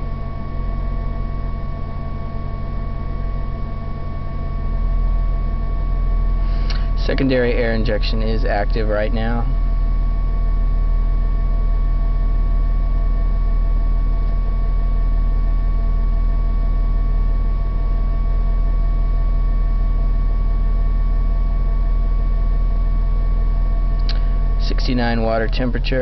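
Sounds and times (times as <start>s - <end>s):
air pump whine: 2.7s - 26.0s
car engine idling: 23.8s - 26.0s.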